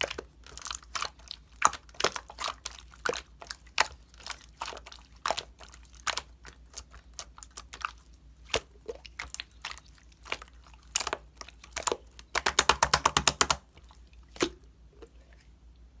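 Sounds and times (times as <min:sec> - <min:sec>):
sharp clicks and taps: 0:11.8 - 0:13.6
rapid clicks: 0:12.3 - 0:13.6.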